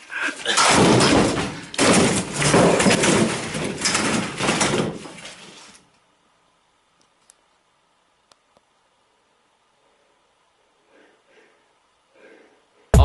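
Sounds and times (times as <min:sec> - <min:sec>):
chairs banging and clattering: 0:00.4 - 0:05.7.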